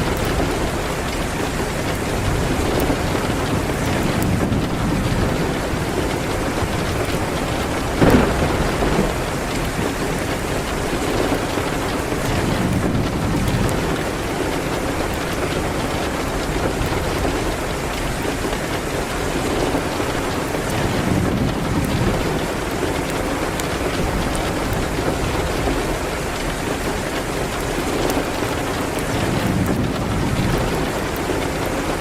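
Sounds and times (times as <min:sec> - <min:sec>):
fireplace fire: 0:00.0 - 0:32.0
rain on a window: 0:00.0 - 0:32.0
sudden loud crack: 0:08.0 - 0:09.3.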